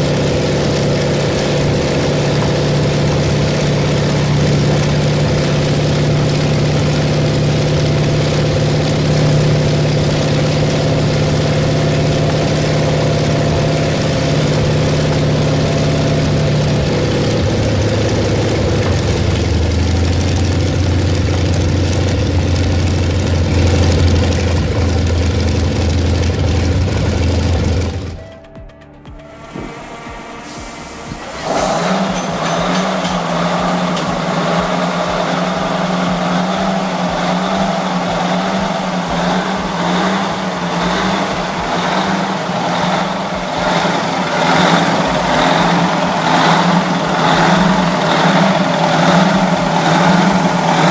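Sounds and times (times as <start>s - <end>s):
large old engine running: 0.0s - 50.9s.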